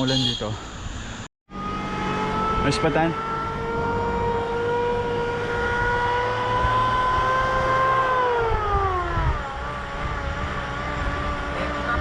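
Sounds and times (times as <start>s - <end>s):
vehicle engine passing by: 1.5s - 12.0s
wind on microphone: 5.4s - 12.0s.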